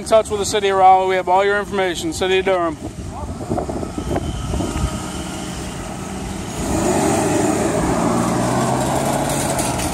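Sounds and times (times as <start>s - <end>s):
car engine pulling away: 4.4s - 9.9s.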